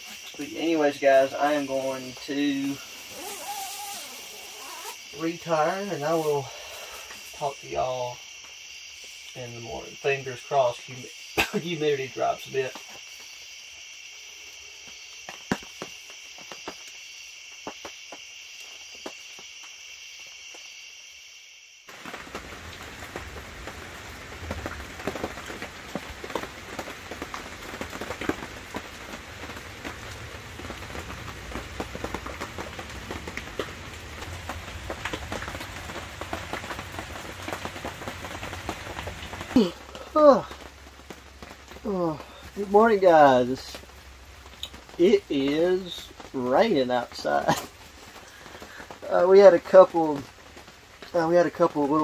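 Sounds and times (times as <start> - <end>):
rain pattering on canvas: 0.0 - 20.7, 21.9 - 52.0
high-pitched insect chorus: 0.0 - 52.0.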